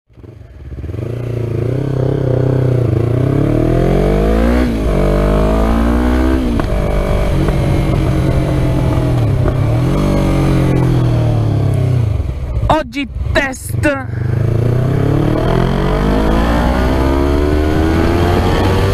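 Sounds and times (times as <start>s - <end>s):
motorcycle engine revving: 0.1s - 18.9s.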